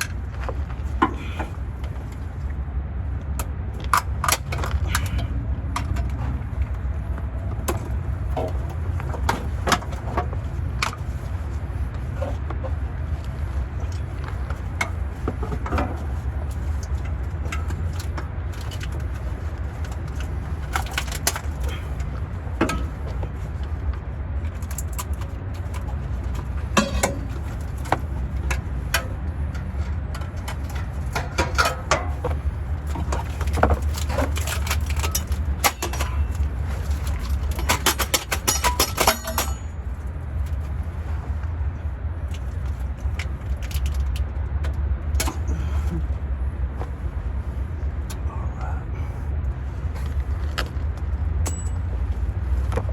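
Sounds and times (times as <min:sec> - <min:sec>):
steady low rumble: 0:00.0 - 0:52.9
hand tools clicking on metal: 0:26.7 - 0:39.7.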